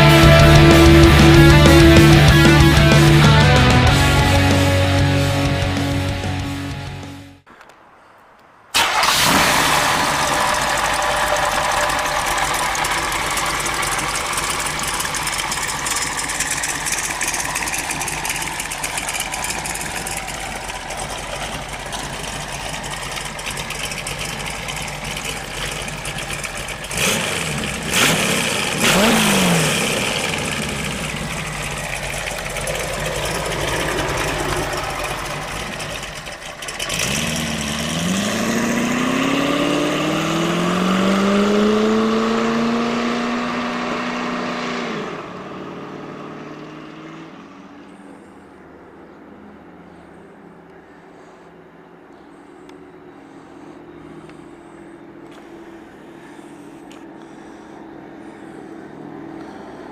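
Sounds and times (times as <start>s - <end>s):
engine idling: 0.0s - 7.2s, 8.8s - 40.8s, 49.8s - 59.9s
engine revving: 0.0s - 7.4s, 8.8s - 48.2s
car pulling away: 0.0s - 7.5s, 8.7s - 59.9s.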